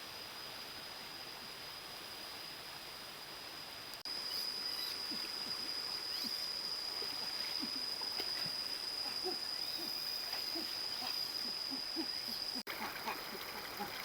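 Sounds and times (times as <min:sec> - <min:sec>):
high-pitched insect drone: 0:04.1 - 0:12.7.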